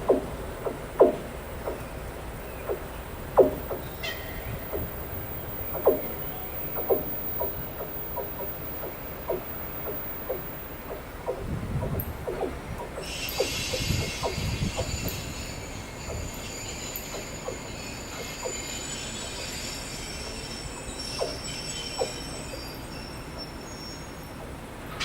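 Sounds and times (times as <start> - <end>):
train wheels squealing: 13.0 - 24.4.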